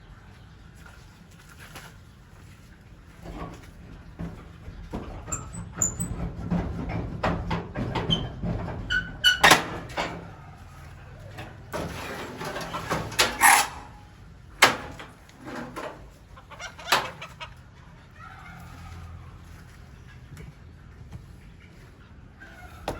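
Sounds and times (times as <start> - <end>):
chickens clucking: 15.0 - 22.9.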